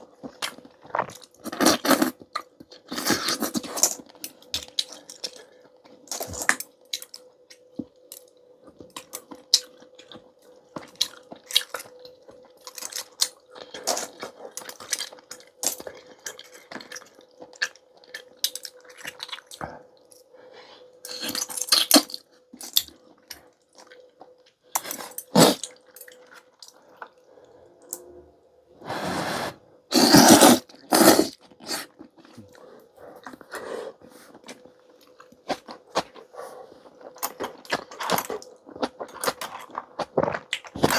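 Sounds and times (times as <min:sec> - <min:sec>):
chewing: 0:00.2 - 0:20.3, 0:21.0 - 0:28.2, 0:29.9 - 0:40.9
slurping noodles: 0:25.4 - 0:25.7, 0:28.8 - 0:32.5.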